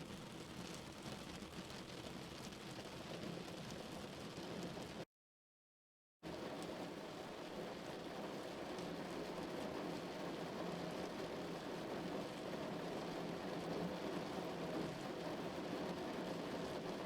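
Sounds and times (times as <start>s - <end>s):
rain pattering on car roof: 0.1s - 5.0s, 6.3s - 17.0s.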